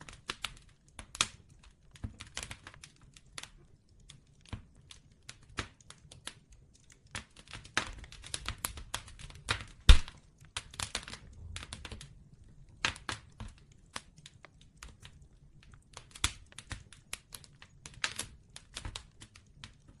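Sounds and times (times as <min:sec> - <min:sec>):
bonfire crackling and popping: 0:00.0 - 0:20.0
faint low rumble: 0:11.2 - 0:12.8.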